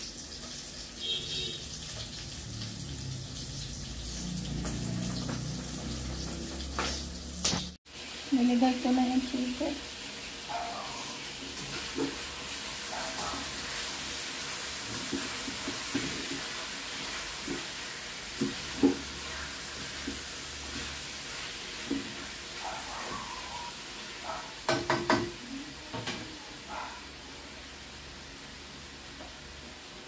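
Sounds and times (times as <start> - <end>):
food sizzling in oil: 0.0 - 30.0
utensil knocking on pan: 24.6 - 25.4.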